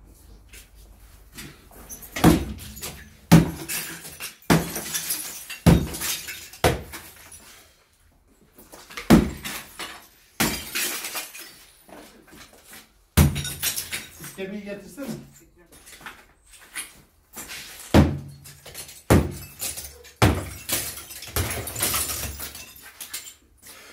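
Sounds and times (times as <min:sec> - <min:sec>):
debris cracking and falling: 0:02.2 - 0:07.3, 0:08.8 - 0:12.5, 0:17.7 - 0:23.5.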